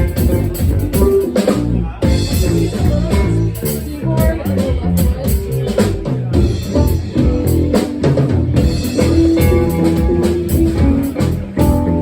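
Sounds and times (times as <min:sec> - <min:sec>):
drum kit beat: 0:00.0 - 0:12.0
live band playing: 0:00.0 - 0:12.0.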